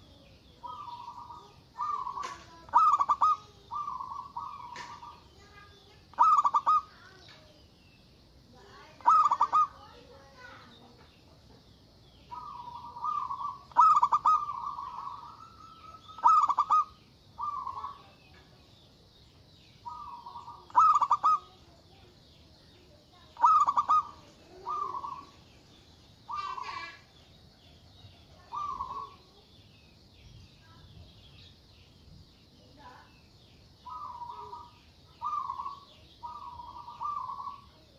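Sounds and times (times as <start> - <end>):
dove cooing: 0.0 - 7.2, 8.8 - 10.6, 12.3 - 18.3, 19.8 - 22.1, 22.8 - 25.5, 26.2 - 27.1, 27.7 - 29.3, 33.8 - 37.9
faint high chirping: 0.0 - 37.9.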